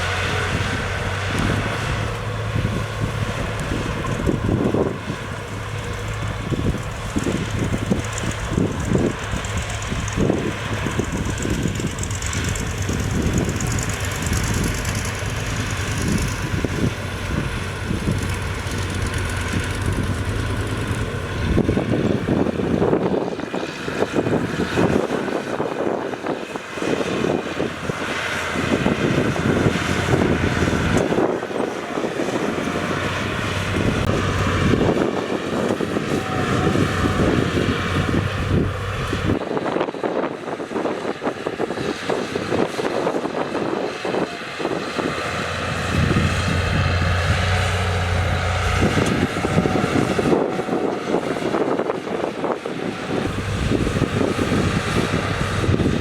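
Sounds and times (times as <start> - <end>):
diesel engine drone: 0.0 - 56.0.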